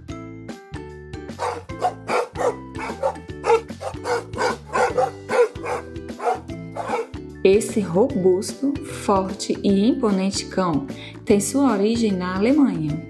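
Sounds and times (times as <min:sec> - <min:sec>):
dog barking: 0:01.4 - 0:07.1
background music: 0:01.4 - 0:13.0.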